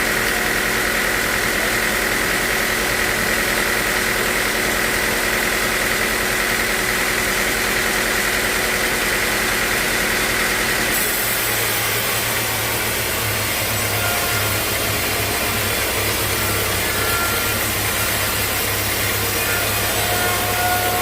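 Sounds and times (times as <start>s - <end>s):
sawmill machinery drone: 0.0s - 21.0s.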